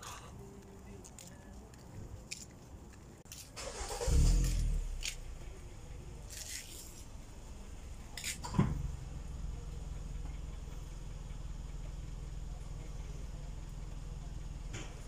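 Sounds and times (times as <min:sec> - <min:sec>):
car engine idling: 0:03.6 - 0:15.0.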